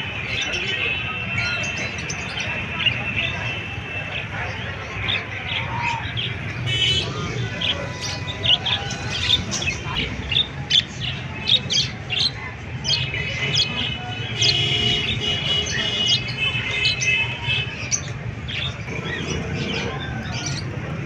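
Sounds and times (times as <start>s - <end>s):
parrots chirping and squawking: 5.0s - 21.0s.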